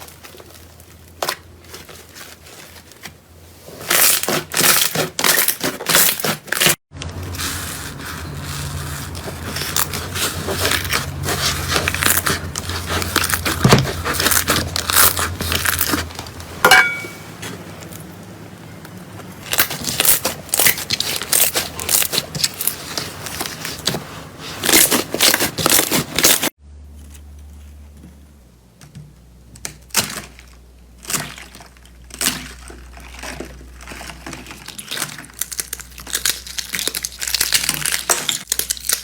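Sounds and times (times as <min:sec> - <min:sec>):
slime crackling and popping: 0:29.7 - 0:39.0.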